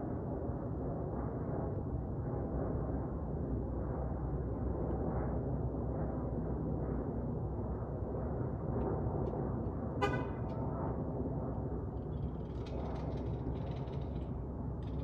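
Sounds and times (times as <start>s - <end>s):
horn-like toot: 10.0s - 10.4s.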